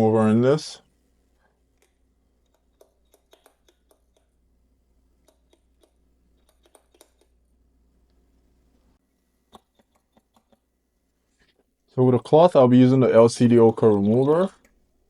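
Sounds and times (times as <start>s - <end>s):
tools clicking on a workbench: 13.6s - 14.8s.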